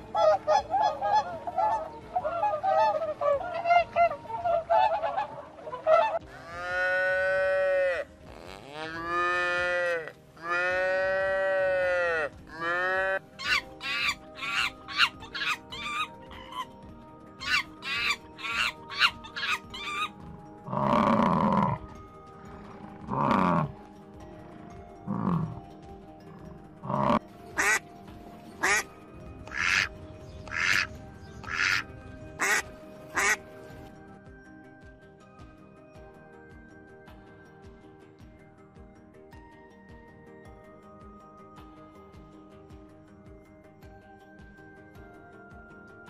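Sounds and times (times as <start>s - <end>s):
flamingos honking: 0.0s - 16.7s, 28.6s - 28.9s, 29.5s - 29.9s, 30.5s - 33.5s
calf mooing: 6.3s - 13.2s.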